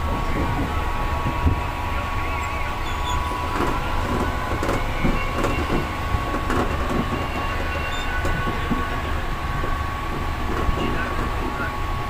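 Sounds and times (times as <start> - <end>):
constant whine: 0.0 - 12.0
train wheels rumbling: 0.0 - 12.0.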